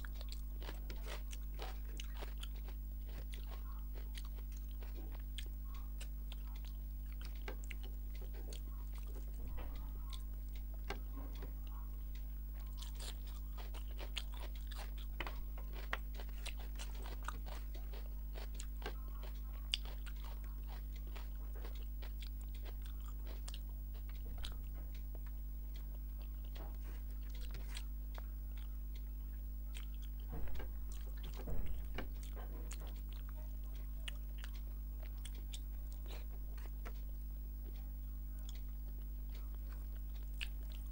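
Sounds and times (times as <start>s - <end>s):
low electrical hum: 0.0s - 40.9s
wet chewing mouth sounds: 0.0s - 40.9s.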